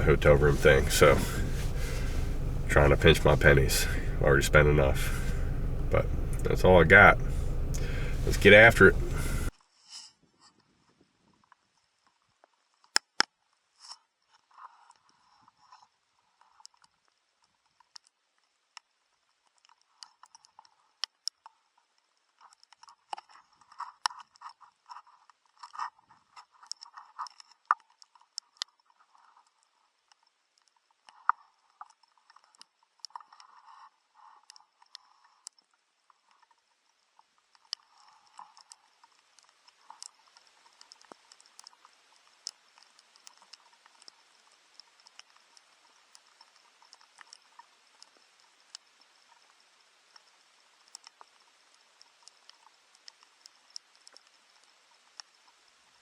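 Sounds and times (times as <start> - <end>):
faint high whine: 0.0 - 9.5
sharp ticks and snaps: 0.0 - 9.5, 25.6 - 56.0.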